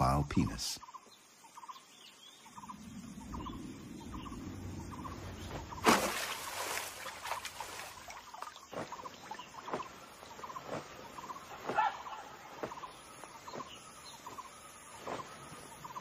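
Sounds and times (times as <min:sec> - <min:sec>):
low rumble: 0:02.6 - 0:05.8.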